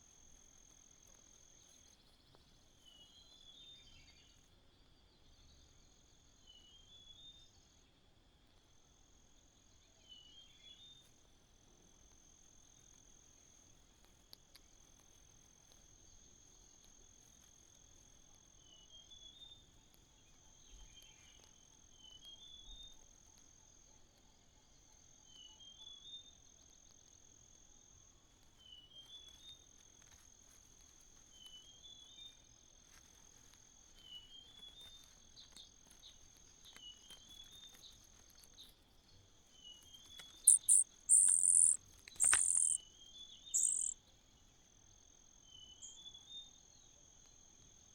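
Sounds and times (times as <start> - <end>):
crickets trilling: 39.3 - 44.0
loud squeaky high calls: 40.5 - 42.8, 43.6 - 44.0.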